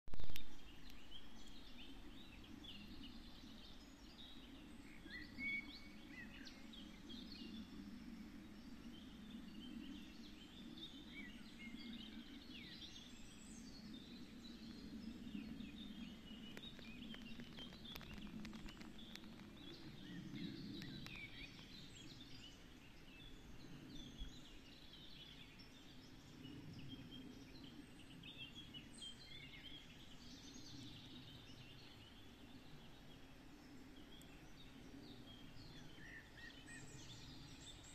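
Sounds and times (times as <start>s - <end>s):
small birds singing: 0.2s - 37.9s.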